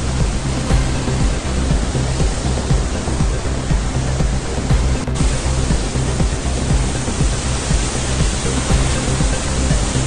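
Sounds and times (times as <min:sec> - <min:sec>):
music playing: 0:00.0 - 0:10.0
water rushing through dam gates: 0:00.0 - 0:10.0.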